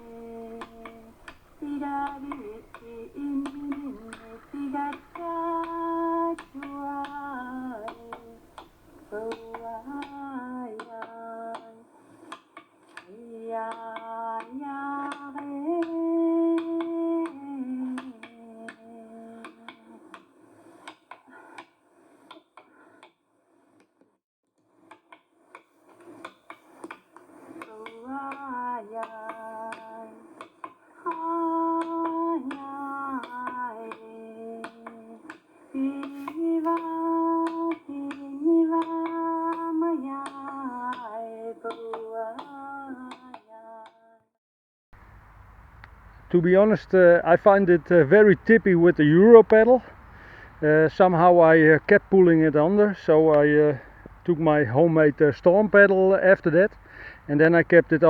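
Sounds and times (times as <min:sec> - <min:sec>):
person humming melody: 0:00.0 - 0:11.9, 0:13.1 - 0:20.1, 0:27.6 - 0:30.4, 0:31.0 - 0:44.0.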